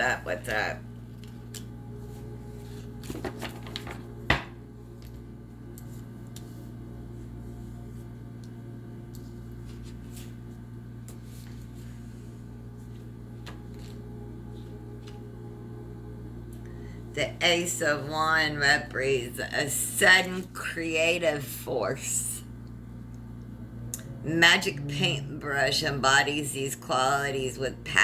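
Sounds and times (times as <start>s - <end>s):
low electrical hum: 0.0s - 28.0s
cards rustling: 1.0s - 4.4s.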